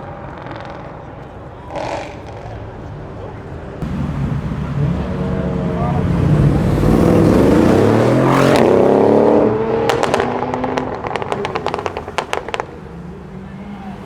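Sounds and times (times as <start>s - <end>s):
car accelerating past: 3.8s - 14.0s
sharp exhaust pops: 9.8s - 12.8s.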